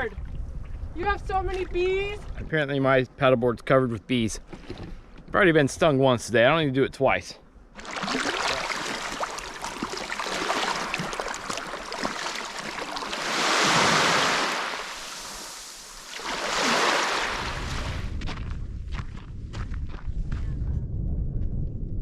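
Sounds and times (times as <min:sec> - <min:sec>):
wind rumble on microphone: 0:00.0 - 0:02.6, 0:17.2 - 0:22.0
surf washing ashore: 0:07.8 - 0:18.1.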